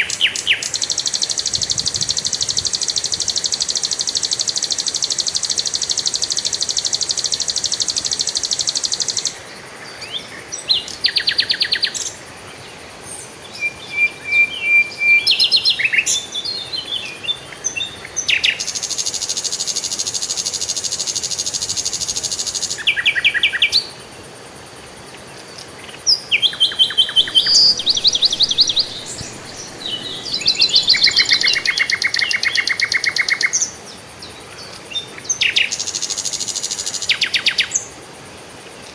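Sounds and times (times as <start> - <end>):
songbirds trilling and chirping: 26.4 - 35.9.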